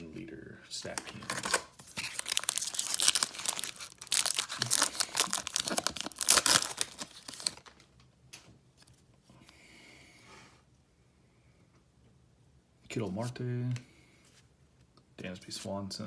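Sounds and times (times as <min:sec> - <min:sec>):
foil wrapper tearing and crinkling: 0:00.9 - 0:07.8.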